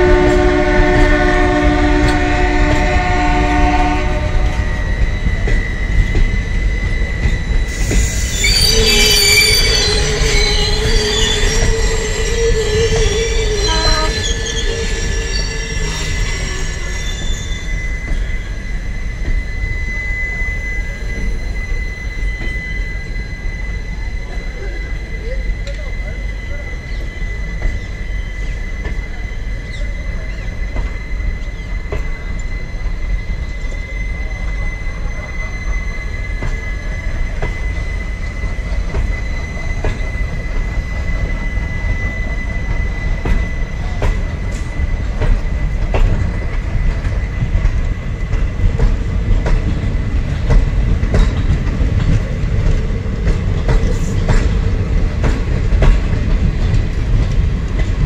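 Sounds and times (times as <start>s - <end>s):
train rumbling on rails: 0.0s - 58.0s
high wheel squeal: 2.2s - 57.8s.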